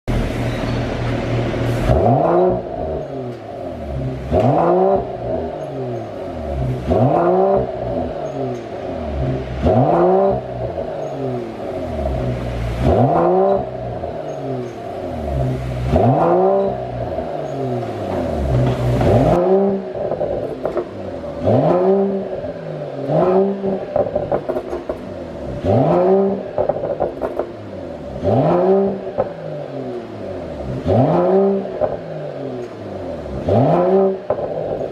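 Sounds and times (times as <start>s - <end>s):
car engine revving: 0.0s - 34.9s
exhaust pops and crackles: 12.0s - 27.6s, 28.2s - 30.1s, 30.7s - 34.9s.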